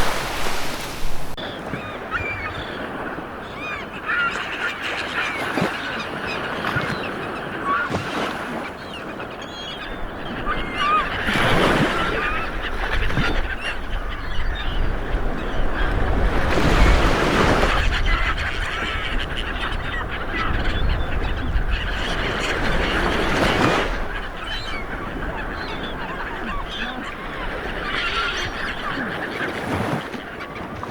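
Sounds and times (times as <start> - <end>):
ocean waves washing in: 0.0 - 4.0
low rumble of surf: 0.0 - 4.1
flock of birds calling: 0.0 - 30.9.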